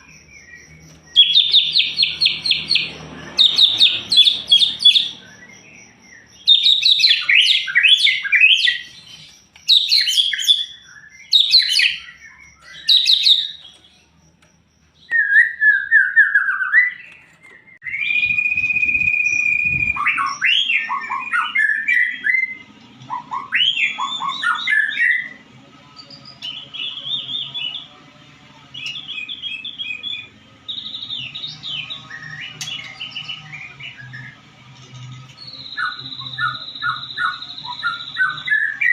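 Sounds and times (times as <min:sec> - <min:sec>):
bird singing: 0:00.0 - 0:38.9.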